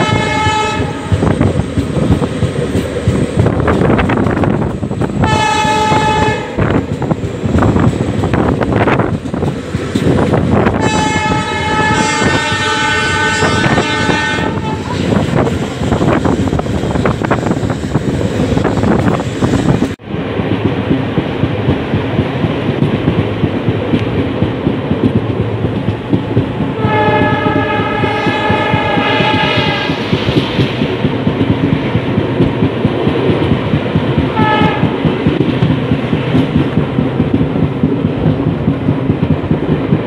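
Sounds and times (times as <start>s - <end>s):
locomotive air horn: 0.0s - 1.2s, 5.2s - 6.6s, 10.7s - 15.2s, 26.8s - 30.0s, 34.4s - 34.9s
train wheels clattering over rails: 0.0s - 40.0s.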